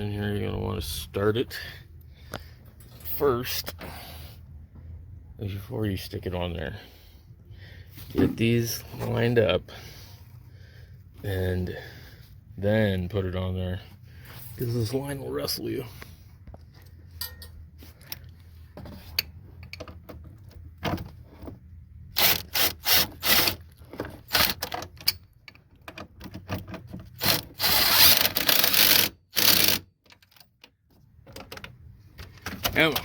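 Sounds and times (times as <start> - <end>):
metal clicks and knocks: 30.0 - 33.0.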